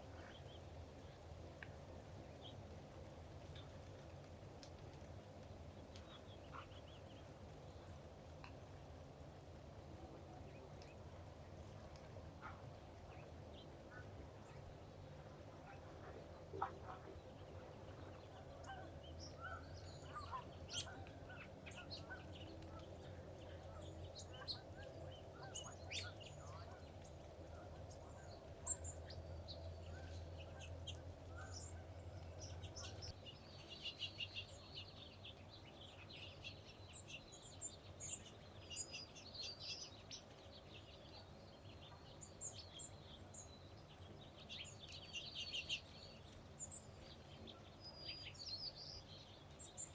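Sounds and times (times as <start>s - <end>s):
faint low rumble: 0.0s - 49.9s
wild birds chirping: 0.0s - 49.9s.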